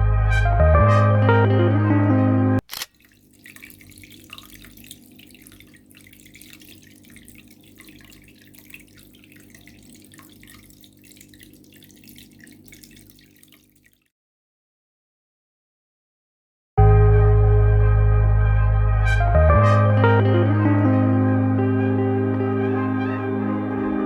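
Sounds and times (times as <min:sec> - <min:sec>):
water trickling and dripping: 0:02.9 - 0:14.1.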